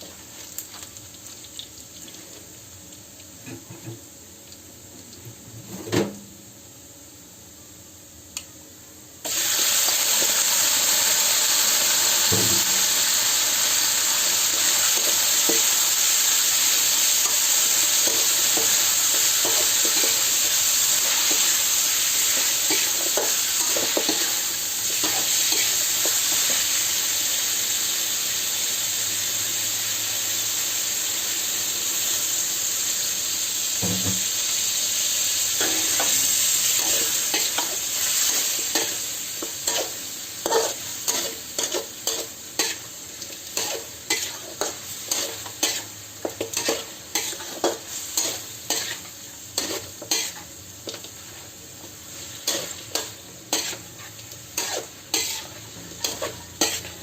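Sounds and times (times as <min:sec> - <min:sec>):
food sizzling in hot oil: 0:00.0 - 0:05.2, 0:09.2 - 0:57.0
spatula scraping a pan: 0:36.8 - 0:42.9, 0:43.5 - 0:51.4, 0:52.1 - 0:57.0.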